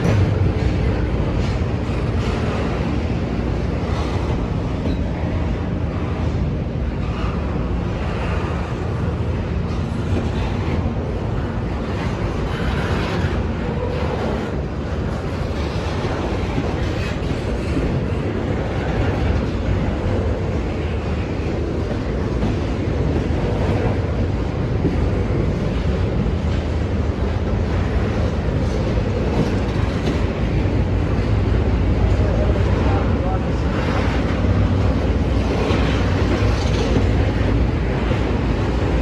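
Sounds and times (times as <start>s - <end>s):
freight train wheels rumbling: 0.0s - 39.0s.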